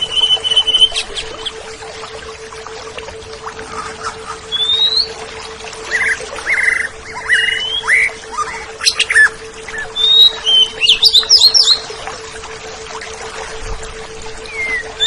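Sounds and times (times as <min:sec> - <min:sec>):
bird singing whistles and chirps: 0:00.0 - 0:01.6, 0:04.5 - 0:05.2, 0:05.9 - 0:11.9, 0:14.4 - 0:15.0.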